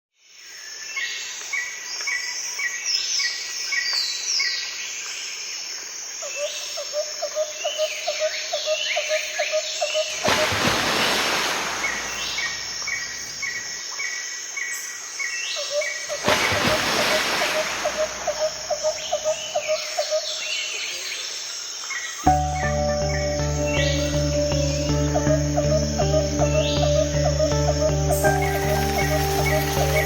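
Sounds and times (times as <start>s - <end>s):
birds singing: 15.2s - 21.3s, 21.9s - 30.0s.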